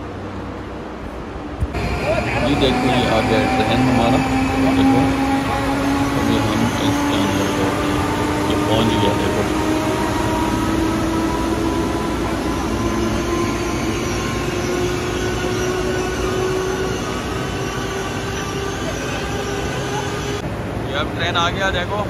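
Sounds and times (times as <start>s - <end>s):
train rolling noise: 0.0s - 22.0s
train whine dropping in pitch: 1.5s - 20.4s.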